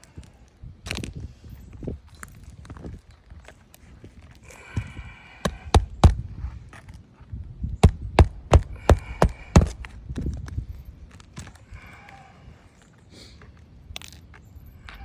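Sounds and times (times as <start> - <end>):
hammer blows on nails: 4.6 - 6.4, 7.8 - 10.0.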